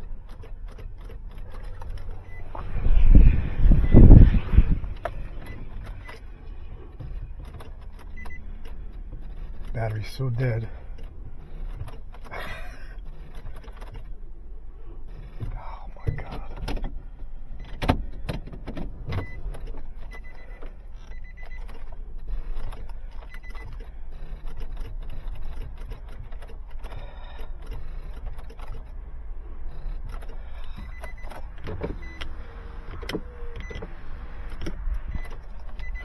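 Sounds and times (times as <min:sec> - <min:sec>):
vehicle engine low rumble: 0:00.0 - 0:36.0
short high beeps: 0:02.1 - 0:06.2.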